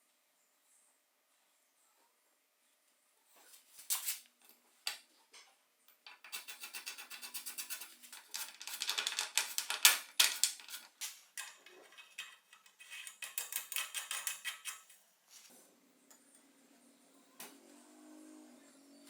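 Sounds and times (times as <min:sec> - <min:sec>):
metallic clicking of bike parts: 0:08.2 - 0:15.0.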